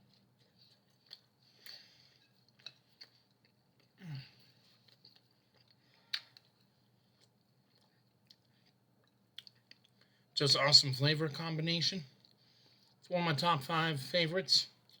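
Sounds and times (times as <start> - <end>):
person chewing food: 0.0 - 10.4, 12.1 - 13.1, 14.8 - 15.0.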